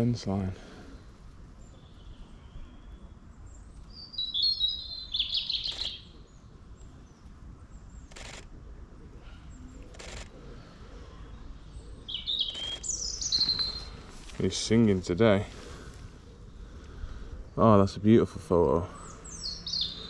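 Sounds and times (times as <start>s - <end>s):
robin warbling song: 3.9s - 6.2s, 11.7s - 15.3s, 18.5s - 20.0s
sharp clicks: 8.0s - 8.5s, 9.8s - 10.4s, 12.5s - 13.0s.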